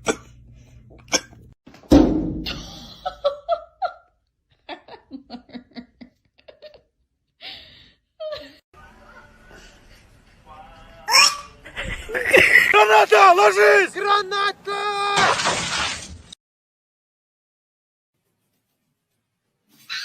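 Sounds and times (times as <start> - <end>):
loud thump: 1.8 - 2.7
person laughing: 2.5 - 6.9, 11.1 - 12.8.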